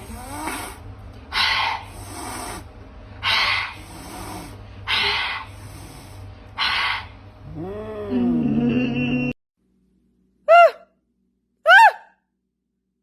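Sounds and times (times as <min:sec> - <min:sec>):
animal breathy rasps: 0:00.0 - 0:07.1.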